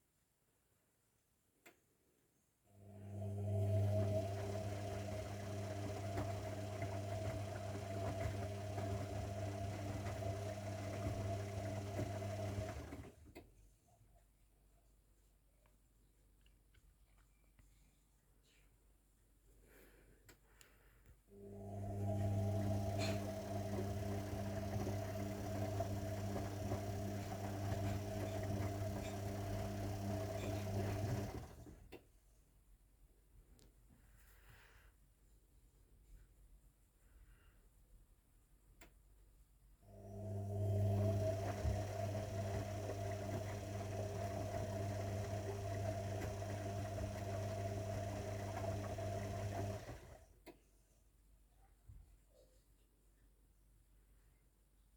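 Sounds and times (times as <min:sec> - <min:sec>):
washing machine humming: 0:02.9 - 0:13.4, 0:21.4 - 0:32.0, 0:39.9 - 0:50.4.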